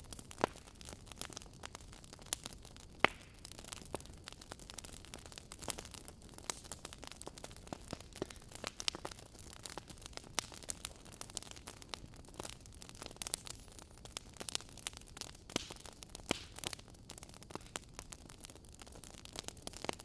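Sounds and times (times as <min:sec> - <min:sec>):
faint low hiss: 0:00.0 - 0:20.0
logs crackling and popping in fire: 0:00.0 - 0:20.0.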